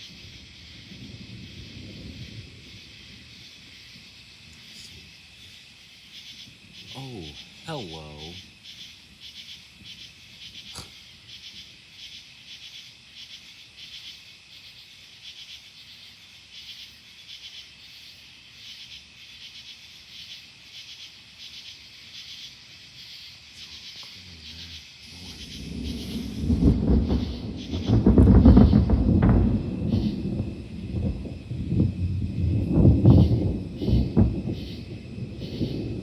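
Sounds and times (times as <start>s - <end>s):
low thunder rumble: 0.0s - 9.2s, 23.8s - 36.0s
night insects chirping: 0.0s - 36.0s.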